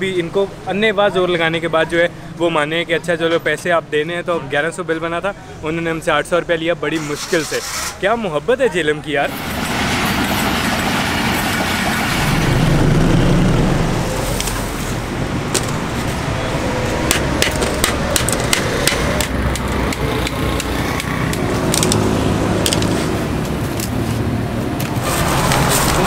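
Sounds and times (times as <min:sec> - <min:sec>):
passing train rumble: 0:09.2 - 0:26.0
sharp irregular clicks and taps: 0:17.1 - 0:22.0, 0:22.6 - 0:24.0.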